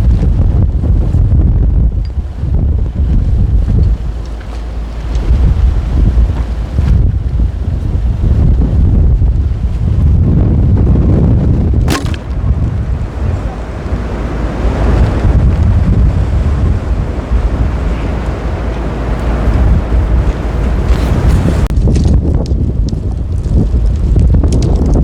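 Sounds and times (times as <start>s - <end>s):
wind buffeting microphone: 0.0s - 25.0s
sharp click: 11.9s - 12.4s.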